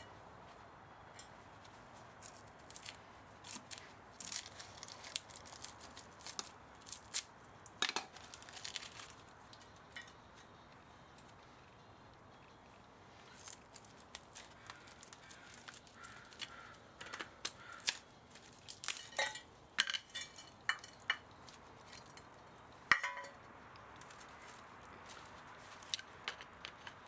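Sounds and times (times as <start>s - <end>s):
metal parts clinking: 18.3s - 22.3s.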